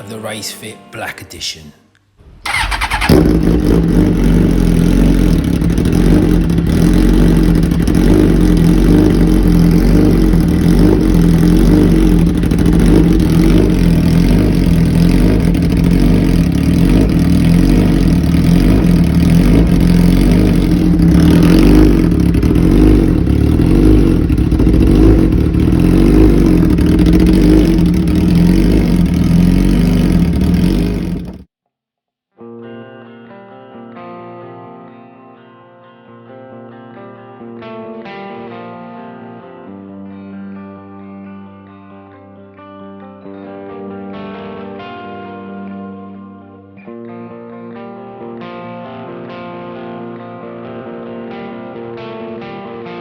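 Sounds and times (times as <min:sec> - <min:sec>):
motorcycle engine idling: 0:02.2 - 0:31.4.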